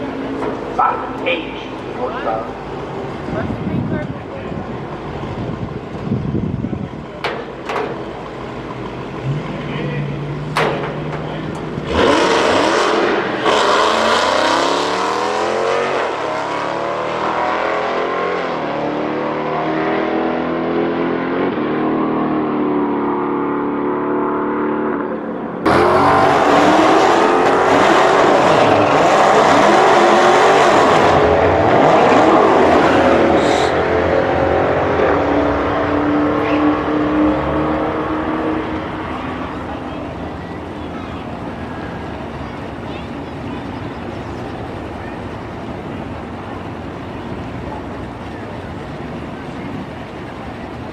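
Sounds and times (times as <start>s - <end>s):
drag racing car engines revving: 0.0s - 50.9s.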